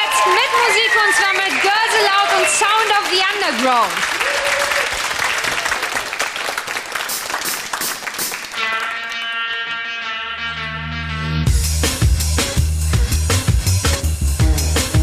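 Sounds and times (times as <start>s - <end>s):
audience applauding and cheering: 0.0s - 9.6s
deep bass: 11.0s - 15.0s.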